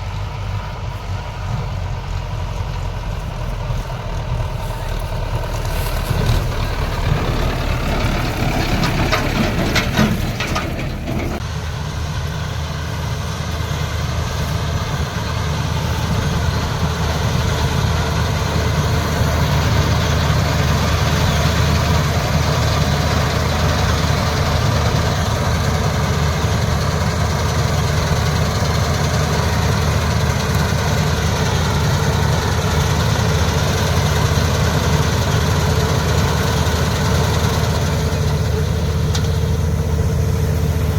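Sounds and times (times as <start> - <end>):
diesel engine running: 0.0 - 40.9
knocks and rattles: 5.9 - 11.4.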